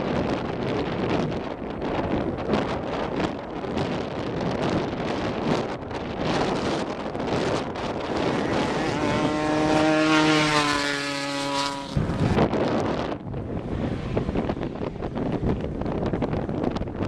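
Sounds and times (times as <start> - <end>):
wind buffeting microphone: 0.0 - 17.0
race vehicle engine passing: 8.1 - 16.4.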